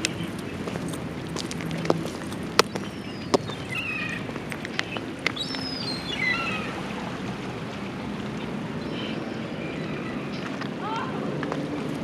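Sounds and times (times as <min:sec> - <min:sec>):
harbourside background noise: 0:00.0 - 0:12.0
high squeaky falling calls: 0:02.7 - 0:06.8.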